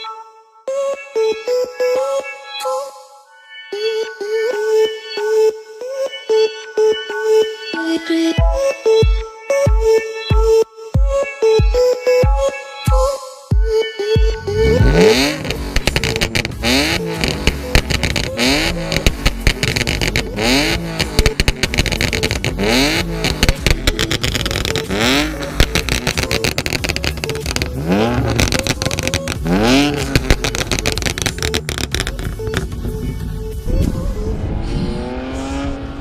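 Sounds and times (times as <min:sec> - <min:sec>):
car engine revving: 0:14.4 - 0:36.0
exhaust pops and crackles: 0:14.9 - 0:33.2.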